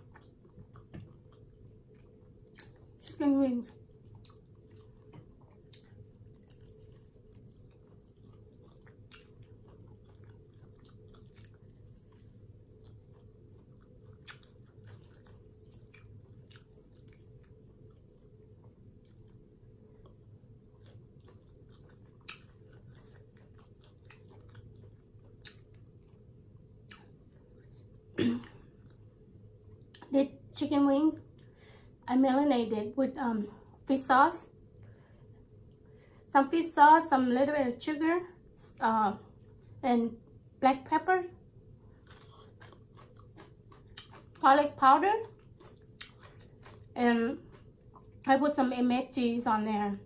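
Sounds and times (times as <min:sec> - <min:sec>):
person chewing: 0:00.0 - 0:03.2, 0:03.9 - 0:29.1, 0:41.5 - 0:48.3.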